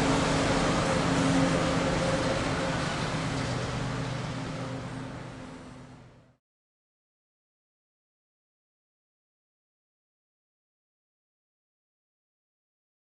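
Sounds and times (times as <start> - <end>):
locomotive engine humming: 0.0 - 6.4.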